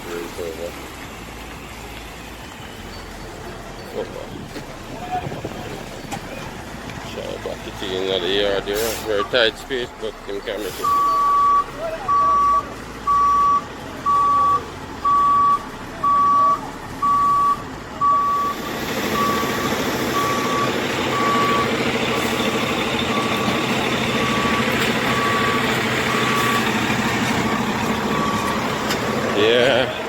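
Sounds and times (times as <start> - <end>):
truck engine running: 0.0 - 30.0
reversing alarm beeping: 10.2 - 29.8.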